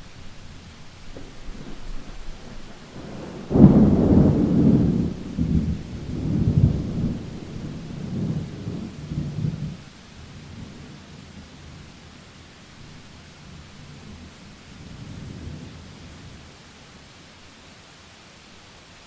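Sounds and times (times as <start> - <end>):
thunder rumbling: 0.0 - 9.8
rain hiss: 0.0 - 19.0.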